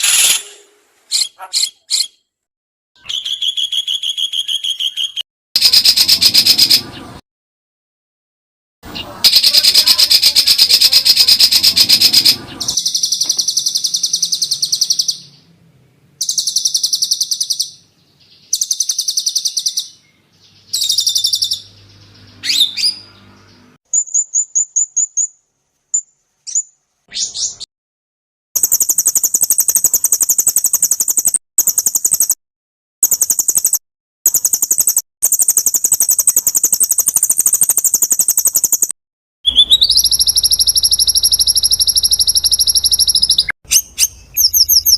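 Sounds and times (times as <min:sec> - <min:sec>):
songbird chirping and trilling: 0:00.0 - 0:02.3, 0:03.0 - 0:07.1, 0:08.9 - 0:27.7, 0:39.5 - 0:44.9
quick ticking bird notes: 0:03.0 - 0:07.0, 0:09.3 - 0:15.4, 0:28.6 - 0:32.4, 0:33.0 - 0:44.9.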